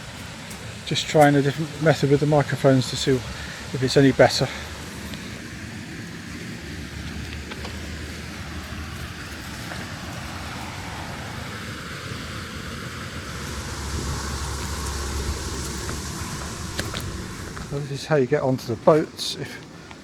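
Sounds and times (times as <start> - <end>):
rushing water: 0.0 - 18.3
machinery low rumble: 13.0 - 18.3.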